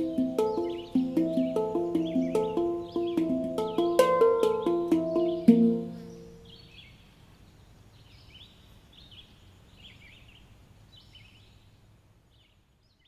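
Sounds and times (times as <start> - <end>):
low steady hum: 0.0 - 7.6
songbird singing: 0.0 - 13.0.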